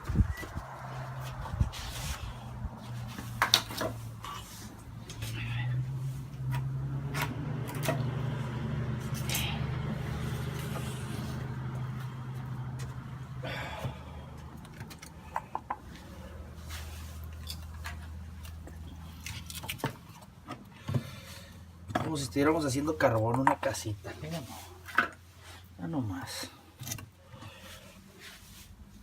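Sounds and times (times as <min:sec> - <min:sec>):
firewood knocking and scraping: 0:00.0 - 0:08.4.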